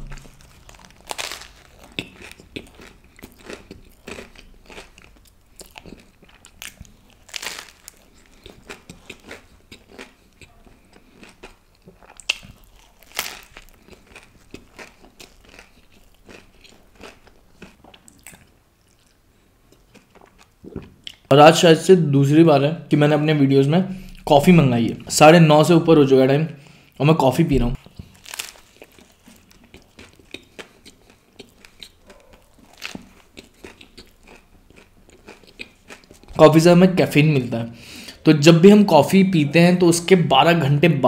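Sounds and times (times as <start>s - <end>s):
biting and chewing sandwich: 0.0s - 21.2s, 27.8s - 36.4s.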